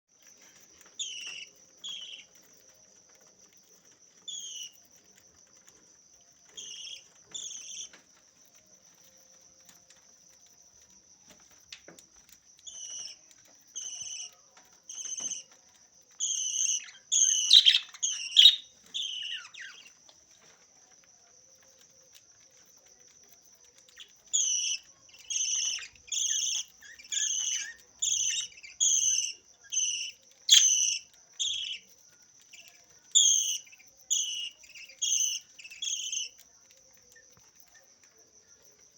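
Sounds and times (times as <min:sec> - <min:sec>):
parrot chirping: 0:00.9 - 0:02.8, 0:04.3 - 0:04.9, 0:06.5 - 0:08.0, 0:12.6 - 0:20.0, 0:23.9 - 0:36.4.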